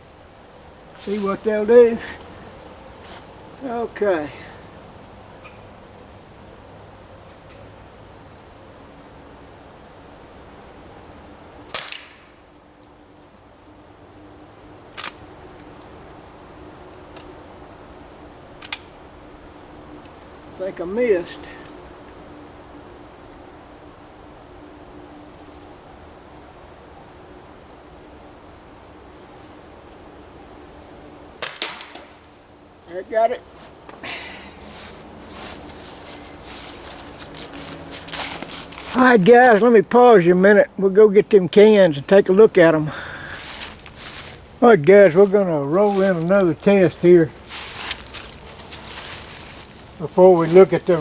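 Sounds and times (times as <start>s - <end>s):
steady hiss: 0.0s - 6.0s, 9.0s - 51.0s
air rifle shot: 11.7s - 12.3s.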